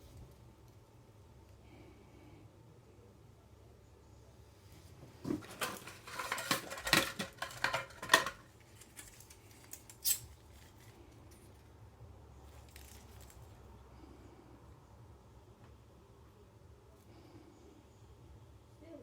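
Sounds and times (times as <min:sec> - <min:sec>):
small hard objects clattering: 0:05.2 - 0:10.9.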